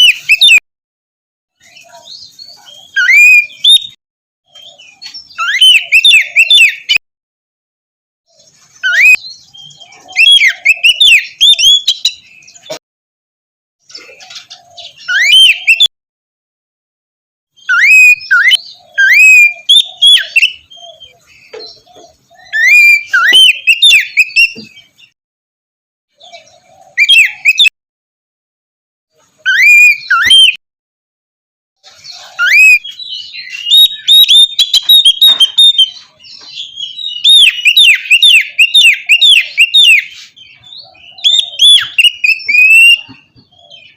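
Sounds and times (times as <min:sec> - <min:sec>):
bird singing whistled notes: 0:00.0 - 0:00.6, 0:01.6 - 0:07.0, 0:08.4 - 0:12.8, 0:14.8 - 0:15.9, 0:17.6 - 0:25.2, 0:26.2 - 0:27.7, 0:29.4 - 0:30.6, 0:32.1 - 0:43.9.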